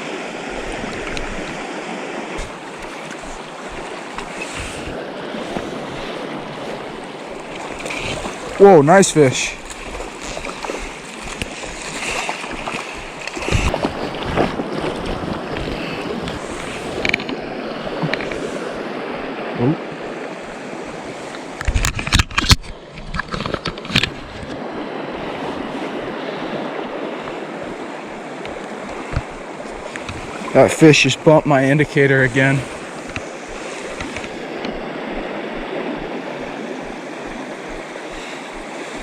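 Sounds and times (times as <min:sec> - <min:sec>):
creek water flowing: 0:00.0 - 0:21.7, 0:24.6 - 0:39.0.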